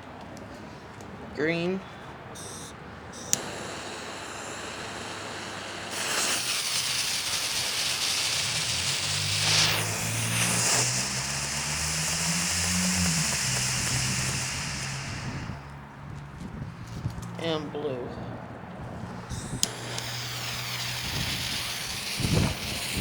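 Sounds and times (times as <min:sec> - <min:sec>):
vehicle engine humming: 0:01.9 - 0:23.0
sharp click: 0:02.4 - 0:11.1, 0:19.3 - 0:23.0
smoke ball hissing: 0:02.4 - 0:15.9, 0:19.2 - 0:23.0.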